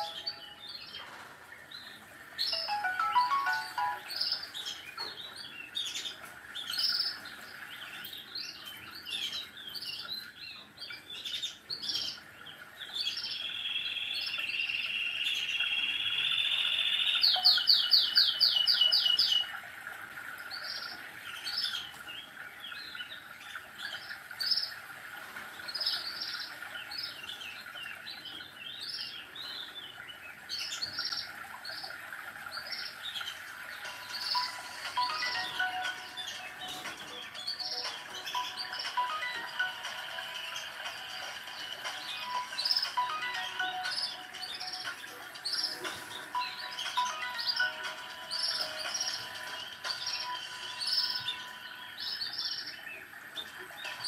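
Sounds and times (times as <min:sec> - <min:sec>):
small songbirds chirping: 0:00.0 - 0:54.0.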